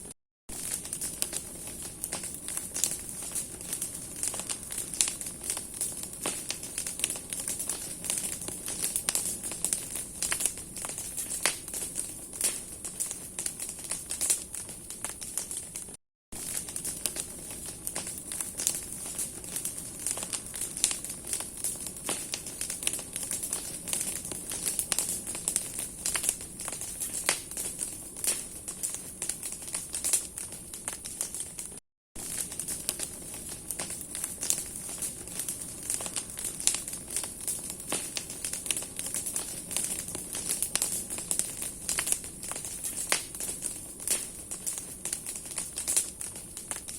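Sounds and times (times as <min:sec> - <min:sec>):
bonfire crackling and popping: 0:00.5 - 0:46.9.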